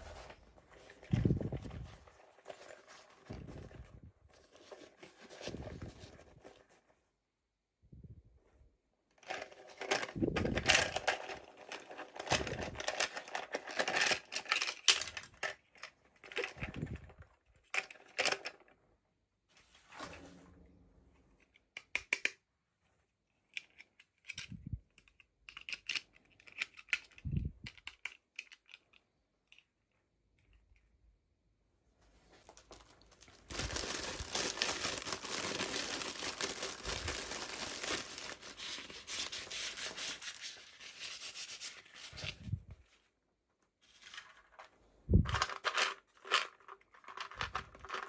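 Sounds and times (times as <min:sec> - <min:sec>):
plastic packaging clicking and crinkling: 0:09.2 - 0:18.8, 0:32.4 - 0:40.6, 0:44.1 - 0:48.0.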